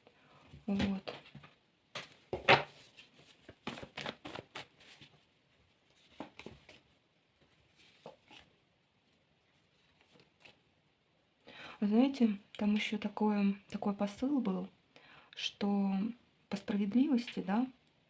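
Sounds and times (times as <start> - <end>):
cards shuffled and slapped on table: 1.9 - 5.0, 6.1 - 6.8.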